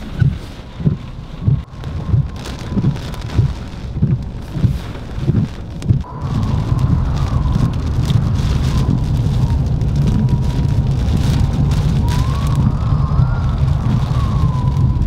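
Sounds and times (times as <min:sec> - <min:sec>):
heavy rain lashing a car: 0:00.0 - 0:15.0
wind and road noise rumble: 0:00.0 - 0:15.0
faint wavering whistle: 0:11.9 - 0:15.0.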